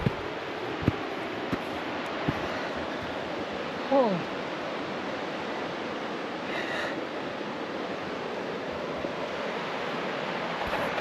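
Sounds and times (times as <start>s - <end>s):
mountain creek rushing: 0.0s - 11.0s.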